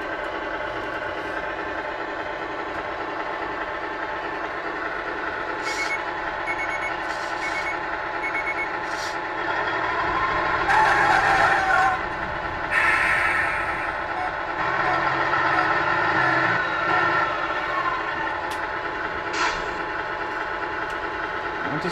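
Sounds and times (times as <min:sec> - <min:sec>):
simulated truck engine idling: 0:00.0 - 0:21.9
reversing beeper: 0:05.7 - 0:08.7, 0:14.1 - 0:18.2.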